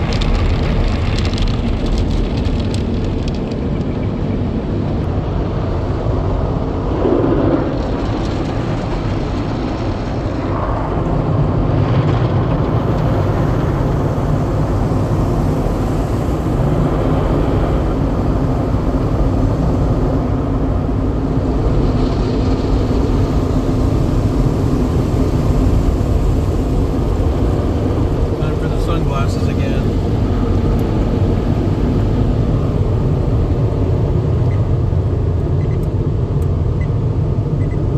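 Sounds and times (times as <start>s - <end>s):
car wash equipment rumbling: 0.0s - 37.9s.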